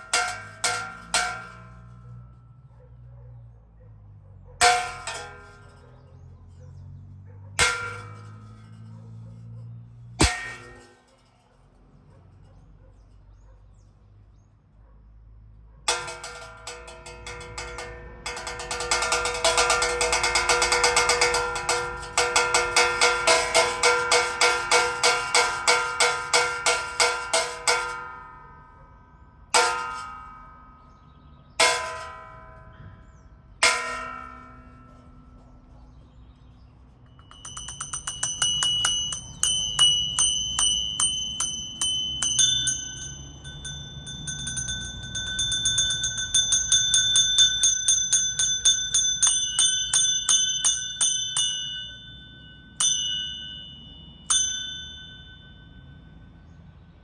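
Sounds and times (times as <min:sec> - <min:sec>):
church bells pealing: 0:37.3 - 0:56.4.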